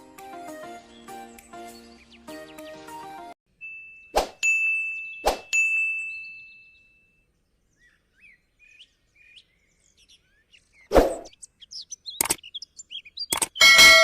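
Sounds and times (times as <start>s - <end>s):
birds chirping: 0.0s - 3.4s, 5.0s - 14.0s
sharp click: 12.2s - 12.4s, 13.3s - 13.6s.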